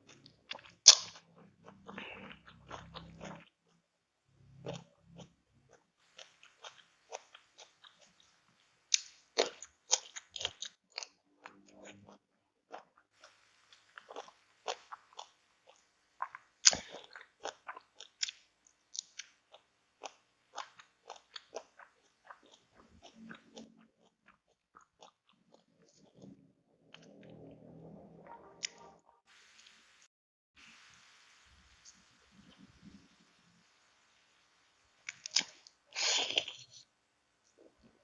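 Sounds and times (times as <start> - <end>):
person chewing crunchy food: 0.0 - 3.7, 4.4 - 27.6, 35.0 - 38.0
wet mouth clicks: 0.1 - 3.5, 35.0 - 36.7.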